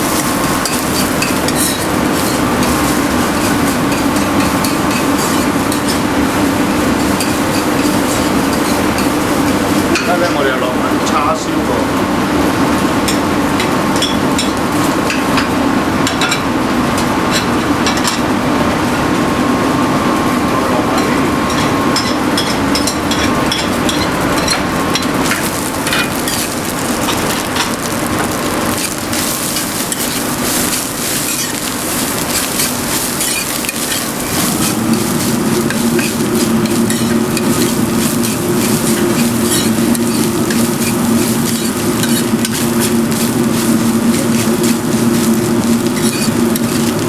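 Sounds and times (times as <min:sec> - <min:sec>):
metal utensil scraping a wok: 0:00.0 - 0:06.1, 0:28.7 - 0:47.0
rice sizzling in a wok: 0:00.0 - 0:47.0
steady low hum: 0:28.7 - 0:47.0.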